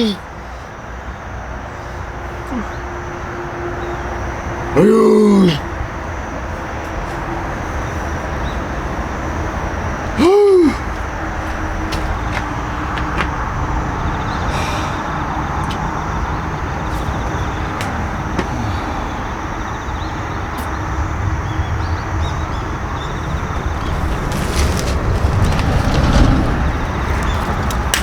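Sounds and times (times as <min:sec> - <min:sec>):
low outdoor rumble: 0:10.8 - 0:28.0.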